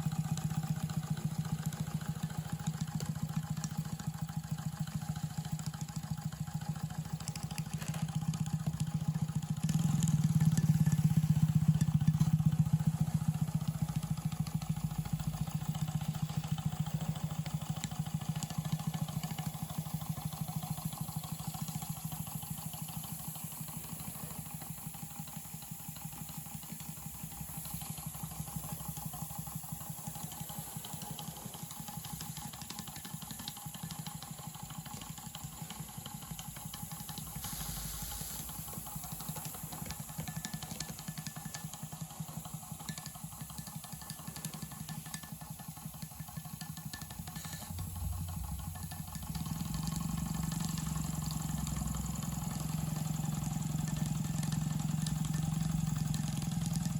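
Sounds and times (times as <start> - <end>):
model steam engine running fast: 0.0 - 56.9
low hum: 47.6 - 56.2.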